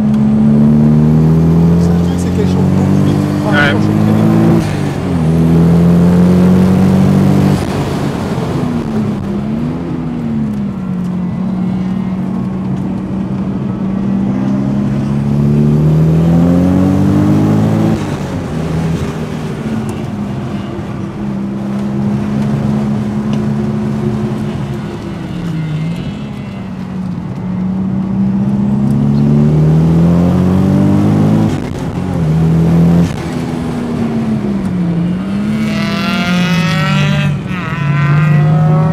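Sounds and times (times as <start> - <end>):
car engine revving from cabin: 0.0 - 8.1, 28.5 - 33.7, 34.9 - 38.9.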